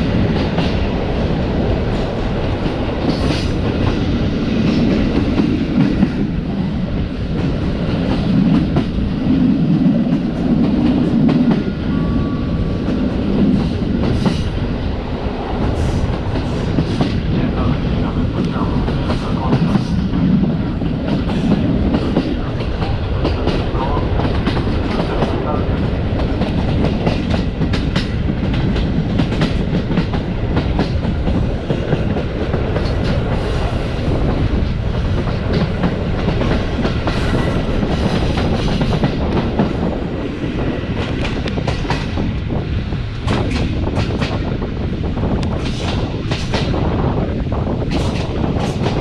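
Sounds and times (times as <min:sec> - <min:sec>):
train rolling rumble: 0:00.0 - 0:49.0
train wheels clacking over rail joints: 0:15.6 - 0:39.9, 0:40.7 - 0:42.4, 0:43.0 - 0:44.6, 0:45.3 - 0:46.9, 0:47.8 - 0:49.0.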